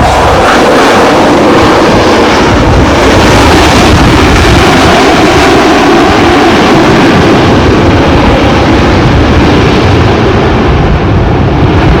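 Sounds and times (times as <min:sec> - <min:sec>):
jet engine hiss: 0:00.0 - 0:07.9
jet engines roaring: 0:00.0 - 0:12.0.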